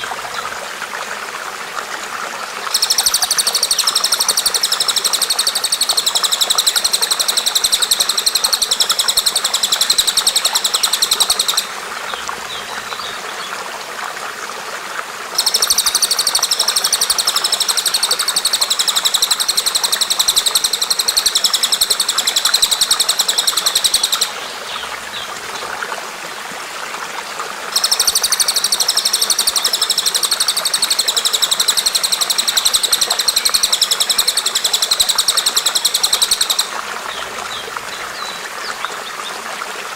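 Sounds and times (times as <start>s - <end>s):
bird chattering trill: 2.7s - 11.7s, 15.4s - 25.2s, 27.8s - 37.6s.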